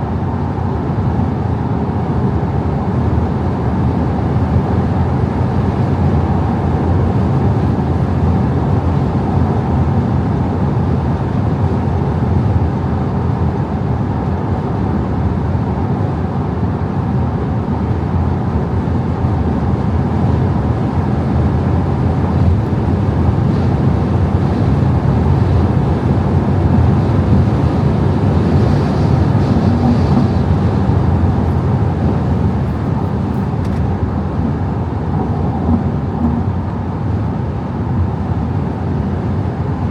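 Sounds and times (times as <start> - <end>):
diesel engine driving at speed: 0.0 - 39.9
tyre and wind noise: 18.9 - 39.7.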